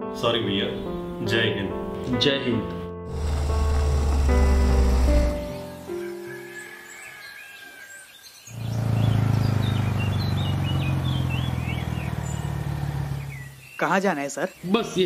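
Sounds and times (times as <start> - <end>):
background music: 0.0 - 7.4
motorcycle engine humming: 3.1 - 5.9, 8.5 - 13.8
birds chirping: 3.1 - 15.0.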